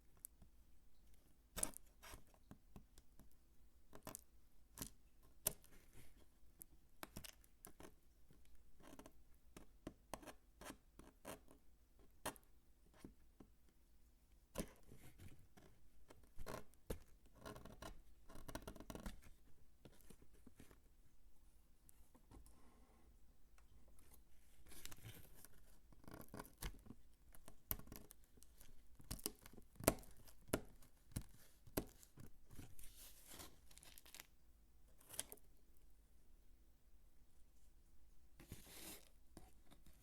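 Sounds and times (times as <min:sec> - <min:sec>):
bar soap being cut and crunched: 0:29.0 - 0:32.7.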